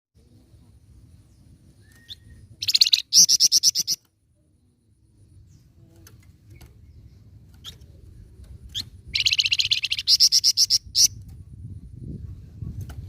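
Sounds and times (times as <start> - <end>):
faint low rumble: 0.2 - 2.6
songbird chirping: 0.2 - 11.3.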